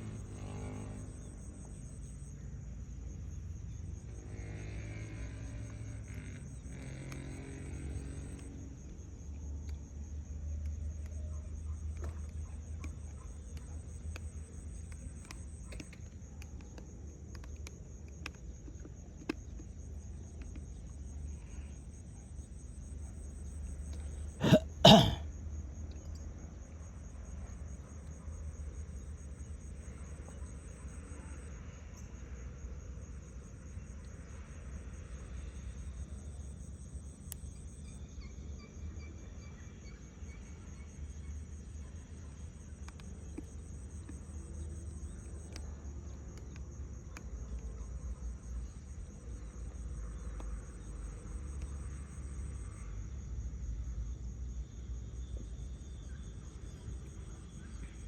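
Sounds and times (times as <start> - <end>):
insects trilling: 23.2 - 25.3
higher insect trill: 24.4 - 25.2.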